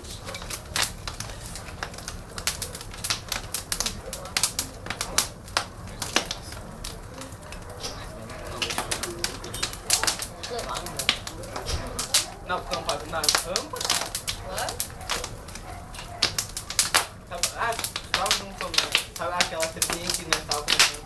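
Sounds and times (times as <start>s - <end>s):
bonfire crackling and popping: 0.0s - 21.0s.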